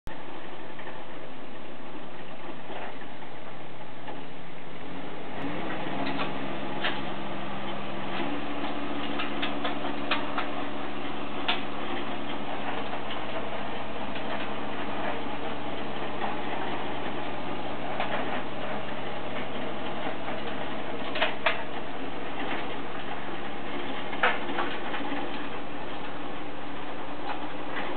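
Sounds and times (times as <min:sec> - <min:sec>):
diesel tractor engine running: 0:00.1 - 0:27.9
clicks and knocks: 0:05.4 - 0:25.5.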